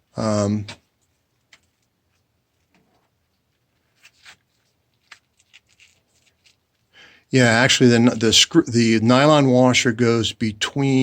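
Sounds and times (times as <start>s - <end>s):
small parts clicking and tapping: 1.0s - 2.8s, 5.0s - 6.6s.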